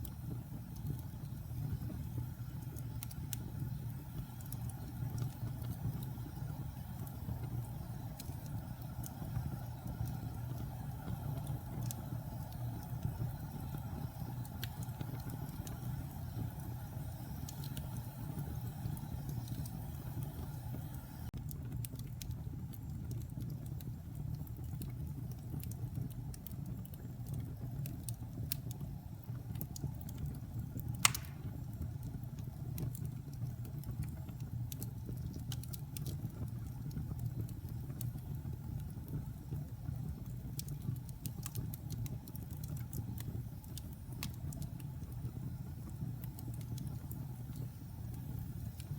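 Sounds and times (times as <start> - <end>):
fire crackles: 0.0 - 48.9
fire rumbling: 0.0 - 48.9
loud pop from fire: 31.0 - 31.6.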